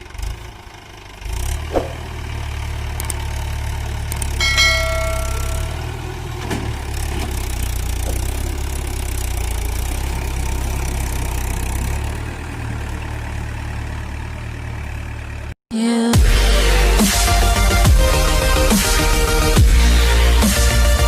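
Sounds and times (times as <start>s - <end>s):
tractor diesel engine idling: 0.0s - 15.6s.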